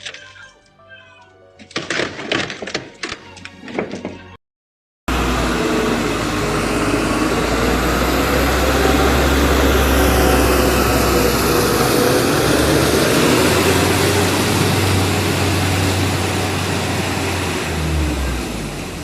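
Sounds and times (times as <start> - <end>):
loud steady engine noise: 5.1 - 19.0.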